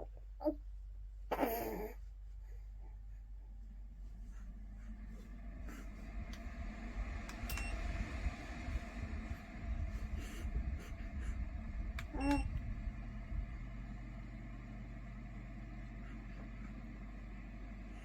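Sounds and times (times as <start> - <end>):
fan heater rumble: 0.0 - 18.0.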